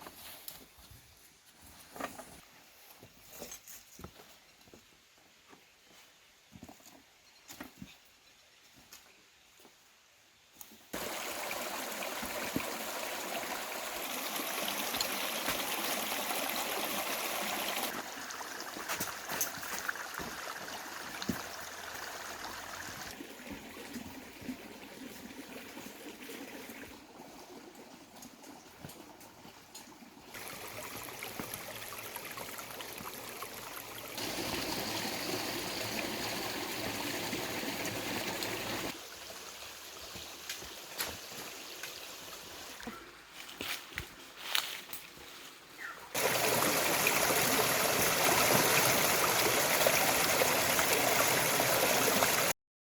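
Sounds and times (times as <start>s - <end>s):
stream flowing: 11.0s - 42.8s, 46.2s - 52.6s.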